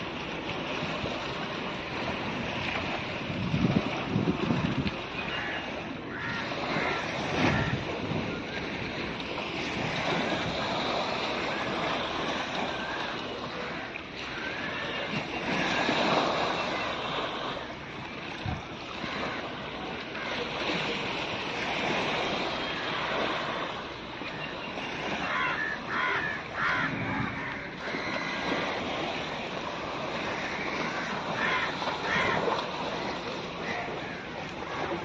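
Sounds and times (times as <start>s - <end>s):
sea waves washing ashore: 0.0s - 35.0s
wind on the microphone: 0.7s - 5.6s, 6.3s - 12.8s, 18.3s - 19.4s, 26.1s - 33.2s.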